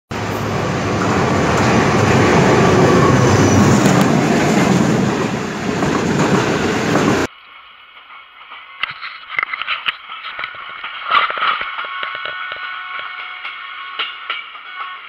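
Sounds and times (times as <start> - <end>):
train wheels rumbling on rails: 0.1 - 7.3.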